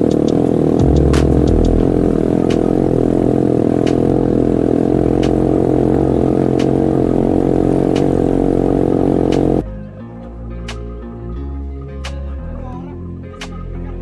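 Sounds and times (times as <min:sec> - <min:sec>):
vehicle engine running: 0:00.0 - 0:09.7
sharp click: 0:13.4 - 0:13.7.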